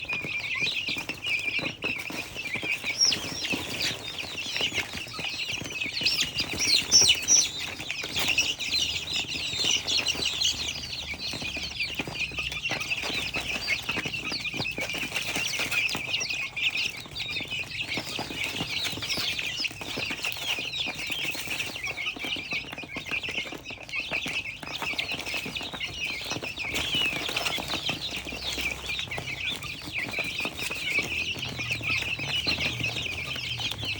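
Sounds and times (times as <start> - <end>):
flock of birds chirping: 0.0 - 33.9.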